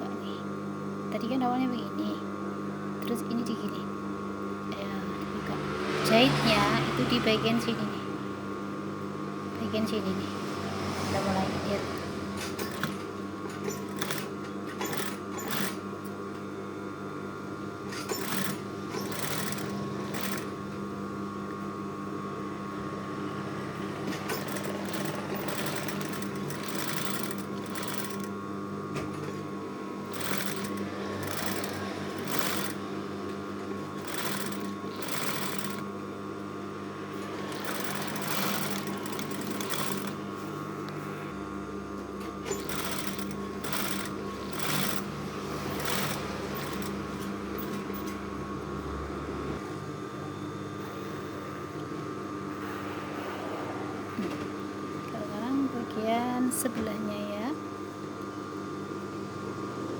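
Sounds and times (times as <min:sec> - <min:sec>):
sewing machine stitching: 0:10.5 - 0:15.8, 0:17.8 - 0:20.8, 0:23.7 - 0:35.9, 0:37.1 - 0:40.3, 0:42.2 - 0:48.2.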